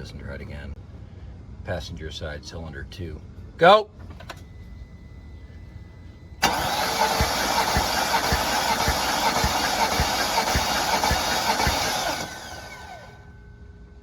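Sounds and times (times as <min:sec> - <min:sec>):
engine cranking on starter: 0:06.4 - 0:13.2.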